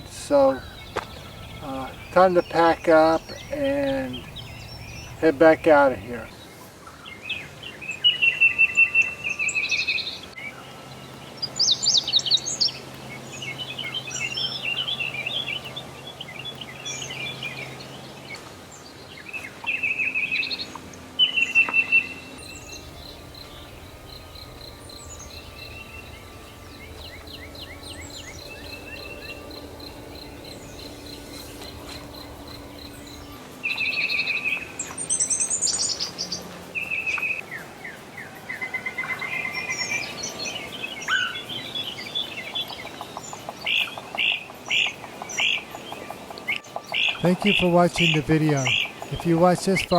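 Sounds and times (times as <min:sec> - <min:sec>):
wild birds singing: 0:00.0 - 0:49.9.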